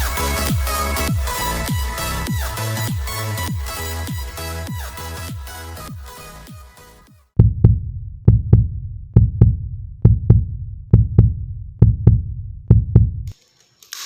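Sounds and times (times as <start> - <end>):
heartbeat thumps: 0.0 - 6.2, 7.4 - 13.3
electronic music: 0.0 - 7.3.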